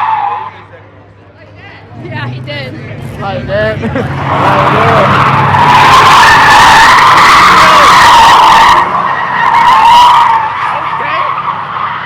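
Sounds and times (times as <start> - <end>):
car tires squealing: 0.0 - 0.7, 3.9 - 12.0.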